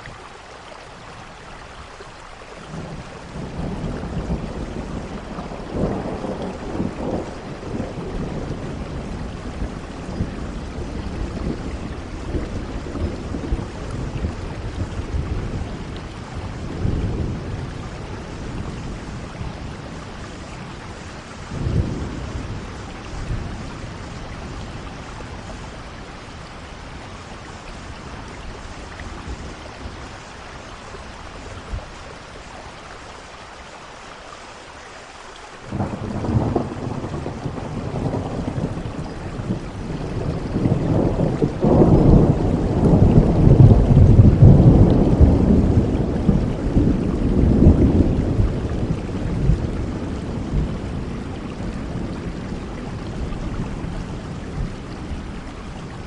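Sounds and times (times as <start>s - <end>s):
rain falling: 0.0s - 56.0s
thunder rolling: 35.7s - 56.0s.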